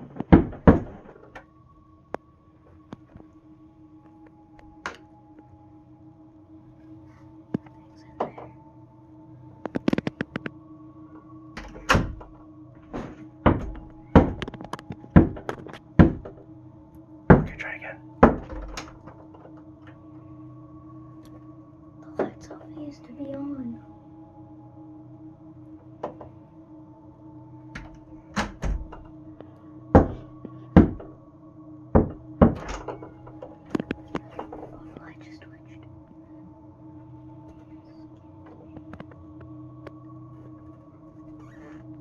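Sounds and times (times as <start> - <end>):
faint steady hum: 0.0 - 42.0
heavy knocks on a door: 0.2 - 1.0, 13.0 - 14.5, 15.1 - 16.4, 17.3 - 18.8, 30.0 - 31.1, 32.0 - 33.0.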